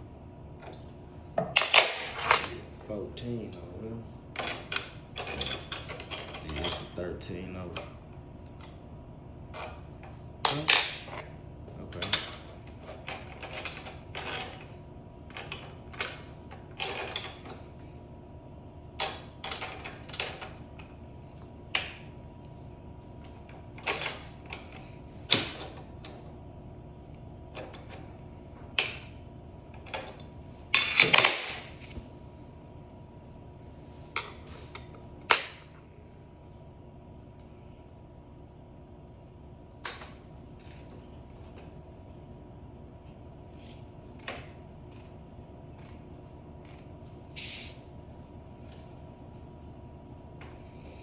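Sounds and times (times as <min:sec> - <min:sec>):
faint steady hum: 0:00.0 - 0:51.0
metal tools clinking and knocking: 0:04.4 - 0:07.0, 0:30.8 - 0:31.8.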